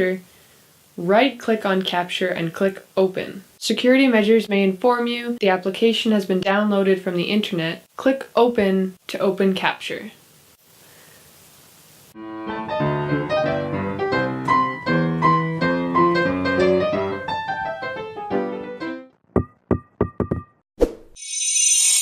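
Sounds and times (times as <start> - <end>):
piano melody with chords: 12.2 - 19.2
bright shimmering sound: 21.2 - 22.0.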